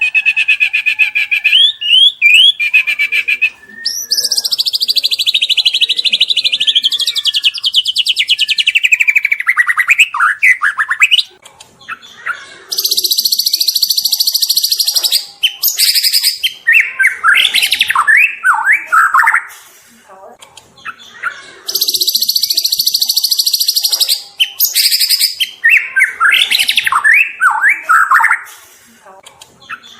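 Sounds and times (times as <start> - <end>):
bird singing rattling trill: 12.8 - 19.3, 21.7 - 28.4.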